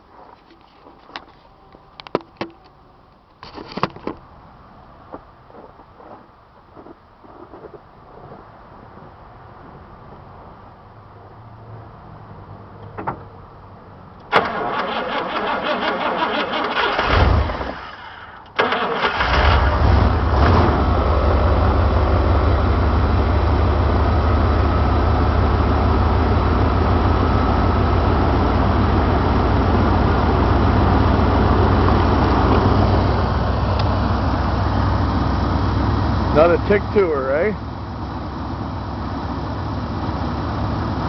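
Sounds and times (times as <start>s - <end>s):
car engine idling: 13.1s - 41.0s
starter motor cranking: 14.4s - 19.4s.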